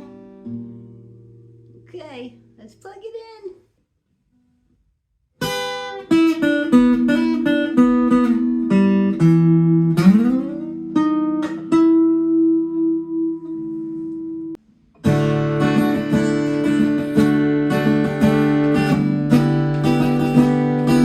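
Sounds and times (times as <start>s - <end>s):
acoustic guitar plucked notes: 0.0s - 2.8s, 5.4s - 21.0s
strummed guitar chords: 5.4s - 21.0s.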